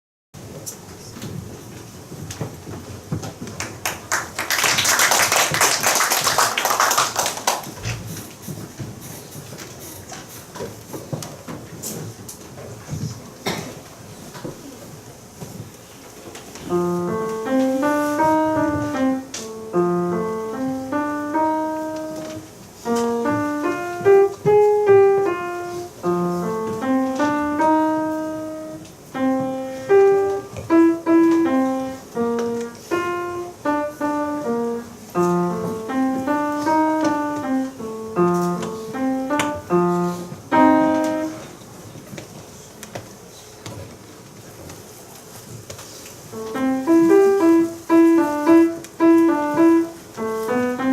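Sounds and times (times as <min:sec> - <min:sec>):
solo piano melody: 0:16.5 - 0:42.0, 0:46.2 - 0:50.9.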